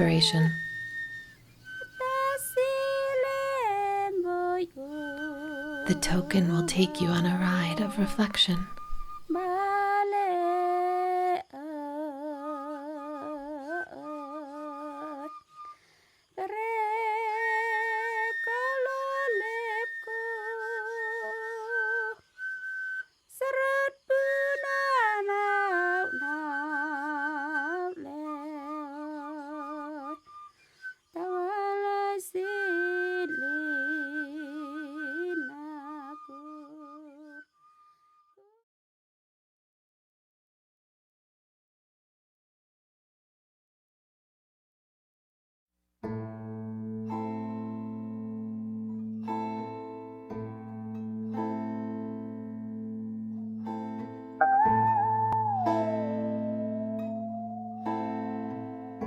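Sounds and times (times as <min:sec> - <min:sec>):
person humming slow melody: 0:04.2 - 0:09.7, 0:54.4 - 0:59.0.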